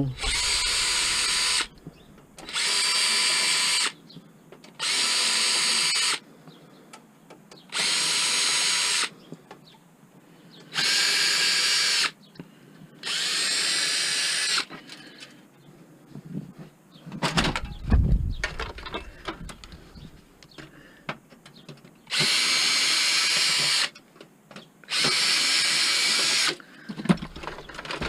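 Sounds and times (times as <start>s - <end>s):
power drill whining: 0.0s - 1.8s, 2.4s - 4.0s, 4.8s - 6.2s, 7.7s - 9.1s, 10.7s - 12.2s, 13.0s - 15.1s, 22.1s - 24.0s, 24.9s - 26.6s.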